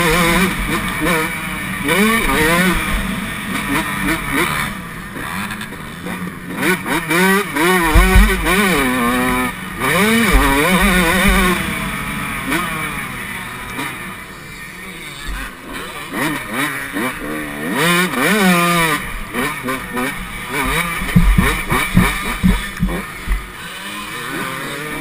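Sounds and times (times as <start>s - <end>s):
motocross engine revving: 0.0s - 25.0s
heavy low thumps: 21.0s - 23.5s.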